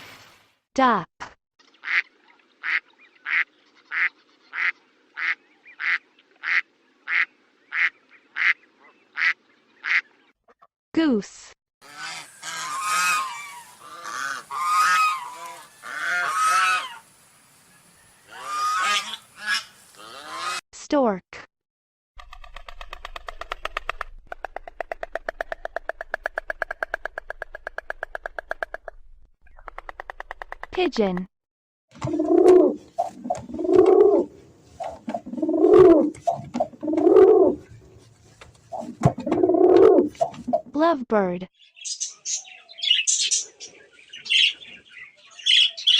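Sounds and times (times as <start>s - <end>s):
goose honking: 2.6s - 8.6s, 11.8s - 17.1s, 18.3s - 20.6s
pigeon cooing: 32.0s - 37.9s, 38.7s - 40.6s.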